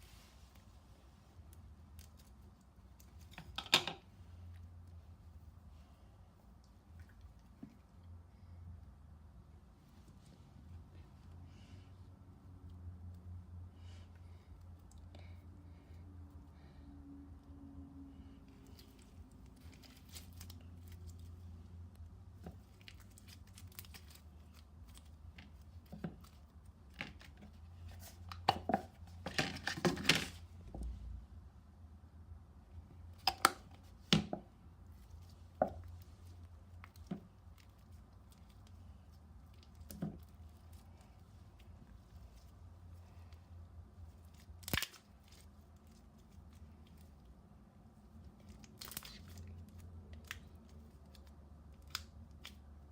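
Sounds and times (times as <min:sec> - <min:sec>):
clicks taps and crinkles of handling: 0:01.3 - 0:05.0, 0:06.5 - 0:08.2, 0:18.5 - 0:31.0, 0:33.1 - 0:47.4.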